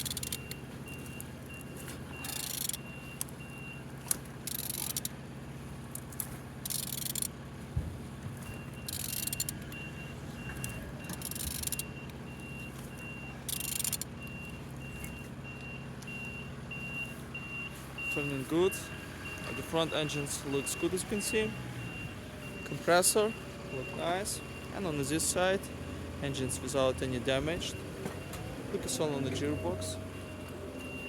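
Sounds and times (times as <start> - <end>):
engine turned over by hand: 0.0 - 5.2, 5.8 - 14.4
high pulsing beep: 28.8 - 31.0.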